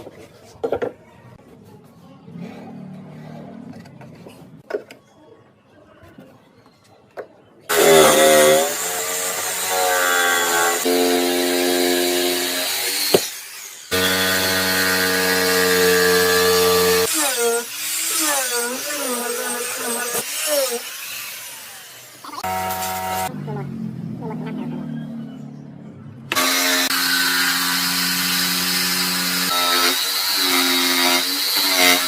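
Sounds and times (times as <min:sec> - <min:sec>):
power saw cutting wood: 0:07.7 - 0:23.3, 0:26.3 - 0:32.0.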